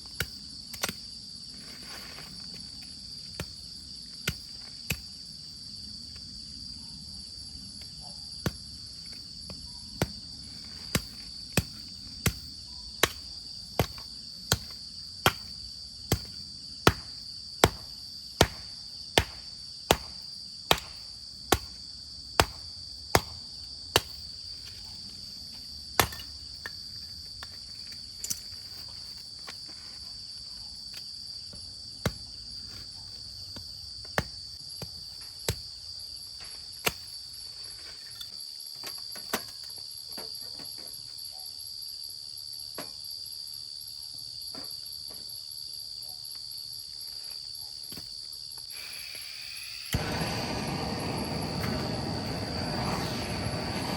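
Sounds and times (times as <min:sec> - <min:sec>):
high-pitched insect chorus: 0:00.0 - 0:53.9
sharp knocks of hammering: 0:16.1 - 0:21.7, 0:22.4 - 0:22.6, 0:23.2 - 0:23.4.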